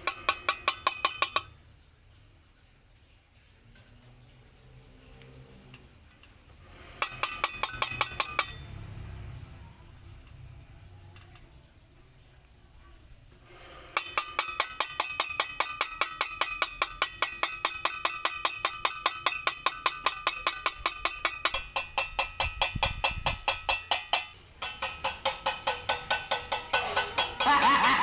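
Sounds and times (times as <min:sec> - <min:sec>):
rapid bell-like percussive strikes: 0:24.6 - 0:28.0.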